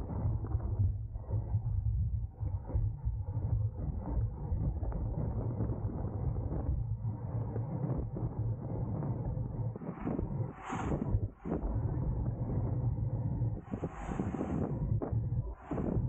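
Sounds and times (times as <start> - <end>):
wind rushing over microphone: 4.5 - 16.0.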